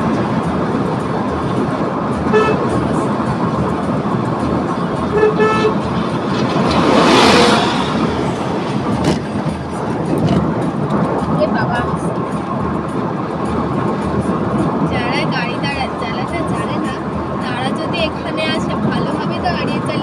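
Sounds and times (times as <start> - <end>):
car road and engine noise: 0.0 - 20.0
vehicle horn beeping: 2.2 - 2.8, 5.0 - 5.9
loud rushing swell: 5.8 - 12.0.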